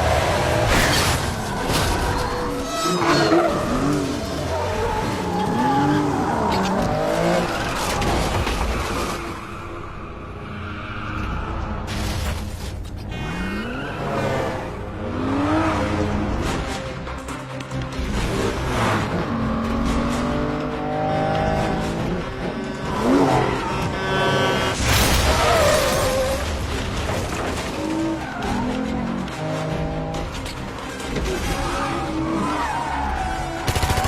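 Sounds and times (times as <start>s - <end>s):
car engines revving: 0.0s - 12.1s, 12.8s - 34.0s
film music score: 0.0s - 34.0s
tyre squeals: 2.2s - 6.7s.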